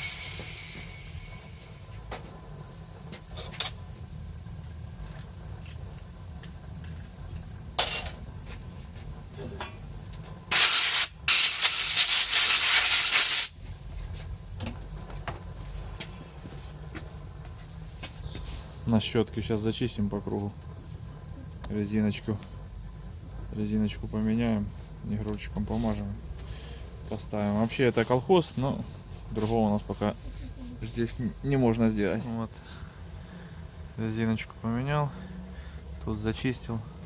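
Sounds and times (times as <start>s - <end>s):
compressed air hissing: 0.0s - 2.0s, 10.5s - 13.6s.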